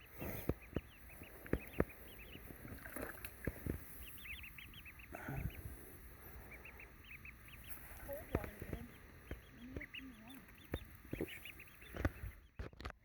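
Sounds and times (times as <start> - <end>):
ducklings peeping: 0.0 - 13.0.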